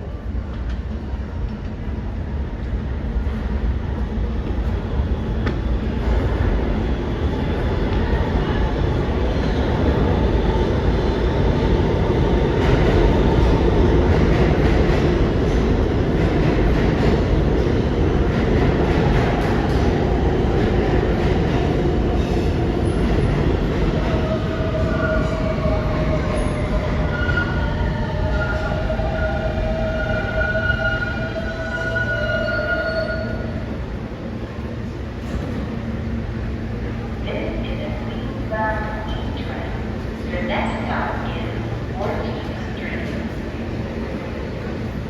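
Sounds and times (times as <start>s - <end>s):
subway train rumbling and rattling: 0.0s - 45.0s
steel wheels squealing on rail: 24.9s - 33.6s.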